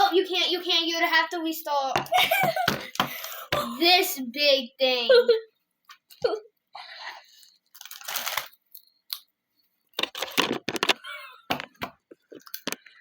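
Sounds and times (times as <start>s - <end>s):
crunchy snack chewing: 7.4s - 9.3s.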